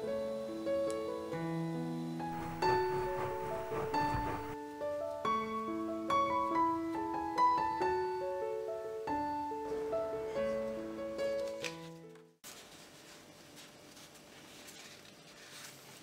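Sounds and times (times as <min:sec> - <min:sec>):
gentle piano music: 0:00.0 - 0:12.4.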